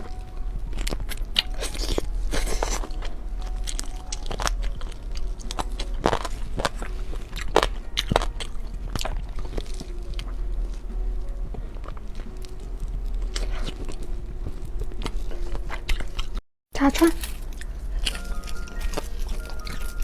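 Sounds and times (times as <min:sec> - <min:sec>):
crunchy chewing of fried food: 0:00.0 - 0:20.0.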